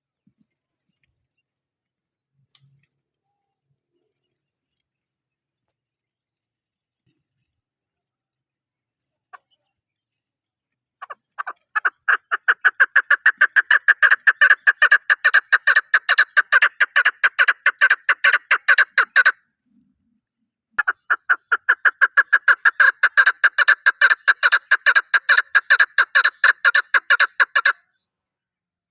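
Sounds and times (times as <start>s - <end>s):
partridge calling sharp notes: 11.0s - 19.4s, 20.8s - 27.8s.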